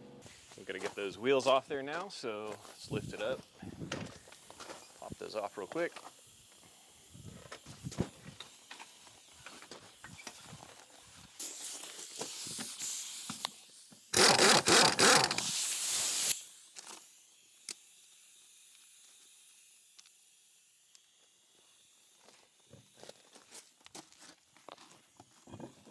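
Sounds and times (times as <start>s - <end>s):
air hiss: 2.6s - 22.2s
impact wrench rattling: 14.2s - 15.6s.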